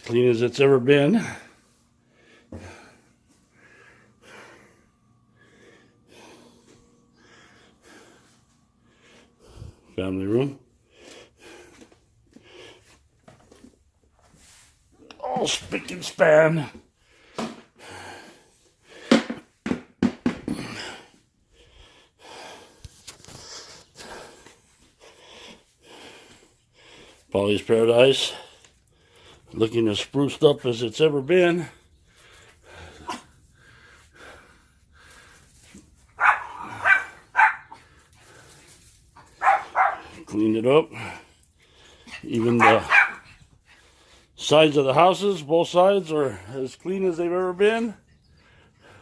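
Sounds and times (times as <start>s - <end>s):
soft breathing: 1.3s - 10.0s, 20.6s - 27.3s, 31.7s - 40.2s, 48.0s - 49.0s.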